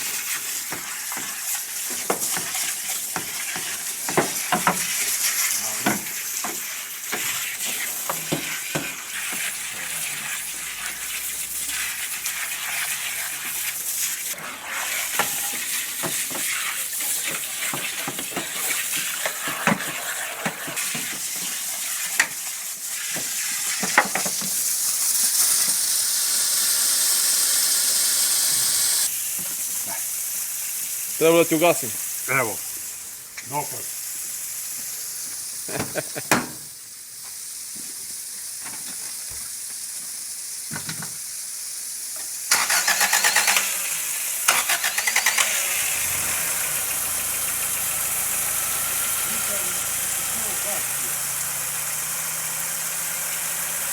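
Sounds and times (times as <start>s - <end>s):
steady water hiss: 0.0s - 53.9s
water splashing over car engine: 1.6s - 21.3s, 42.5s - 53.9s.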